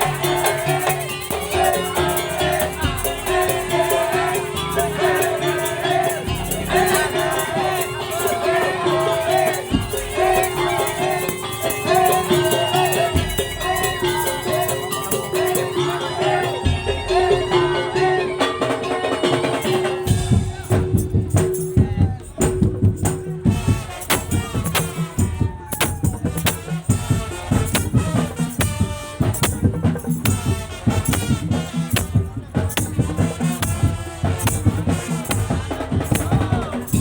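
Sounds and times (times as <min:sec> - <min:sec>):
fast drumming and rattling percussion: 0:00.0 - 0:17.4, 0:18.6 - 0:37.0
held melodic line: 0:00.0 - 0:23.6.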